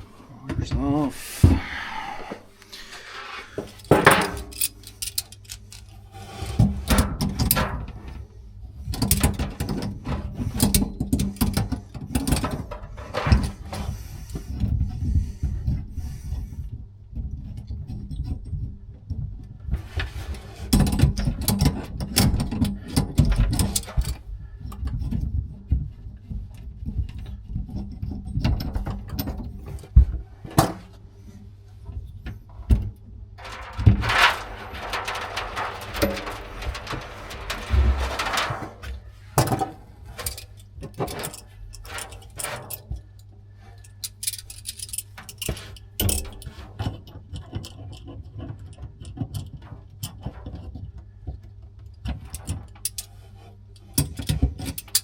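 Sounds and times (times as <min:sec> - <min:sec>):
tools knocking and clicking: 0:03.8 - 0:05.9.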